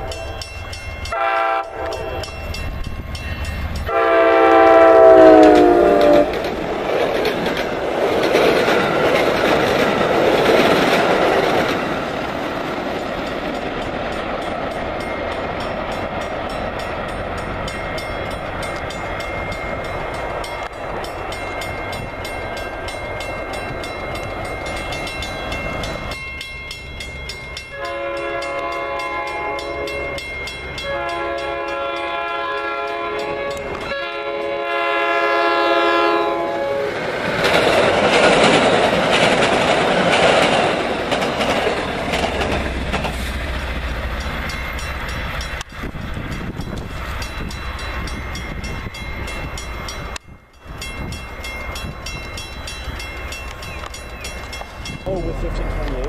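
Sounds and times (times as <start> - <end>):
train rumbling and clattering: 0.0 - 56.0
train horn blasts: 1.0 - 2.5, 3.9 - 6.5, 27.7 - 37.0.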